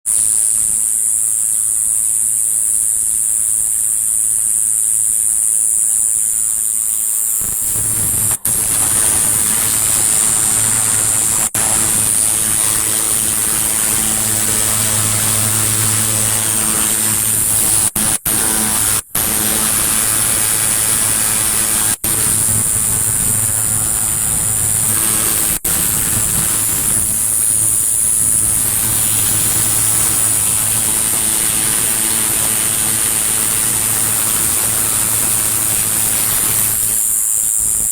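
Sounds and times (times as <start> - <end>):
insect high-pitched trill: 0.1 - 37.9
low hum: 7.4 - 37.0.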